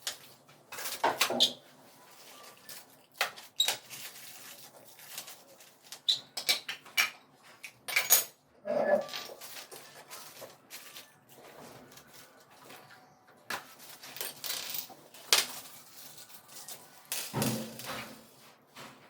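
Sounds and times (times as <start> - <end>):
packaging squeak: 9.3 - 12.5.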